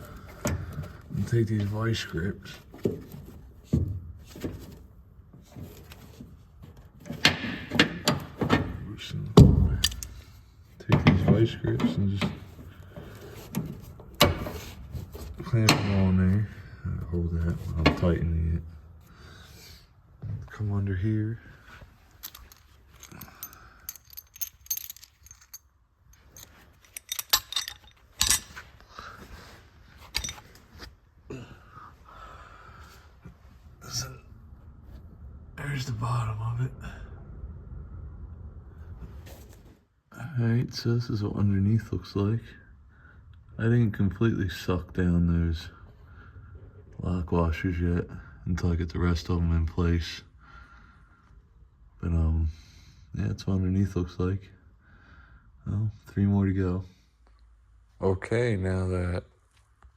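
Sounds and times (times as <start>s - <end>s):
metallic clinks of bolts and tools: 9.8s - 10.2s, 22.1s - 28.7s, 30.0s - 30.6s
sharp clicks and knocks of tools: 9.8s - 10.2s.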